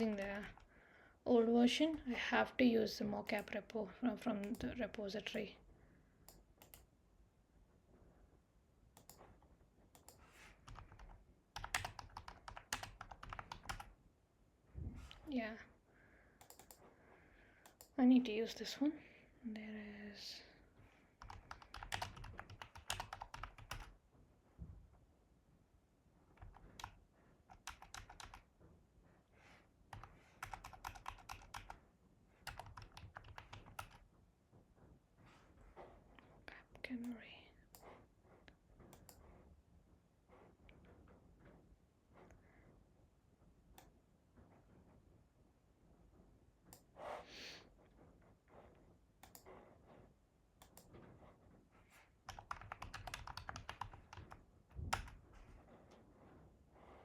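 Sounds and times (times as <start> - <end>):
typing on computer keyboard: 0.0 - 0.7, 4.4 - 5.0, 6.3 - 6.9, 9.9 - 14.0, 16.4 - 16.8, 21.2 - 24.0, 26.3 - 28.5, 29.9 - 31.8, 32.4 - 34.1, 52.2 - 55.4.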